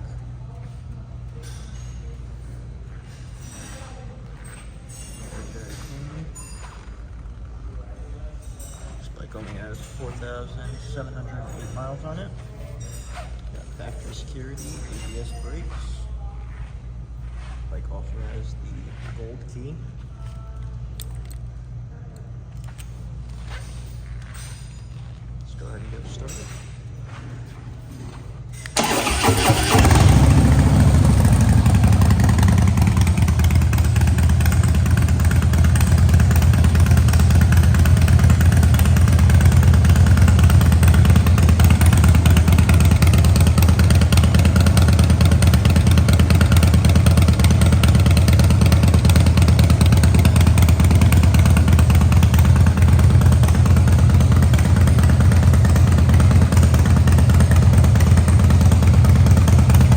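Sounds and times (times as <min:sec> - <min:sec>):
motorcycle engine idling: 0:28.8 - 0:59.9
motorcycle engine starting: 0:28.8 - 0:59.9.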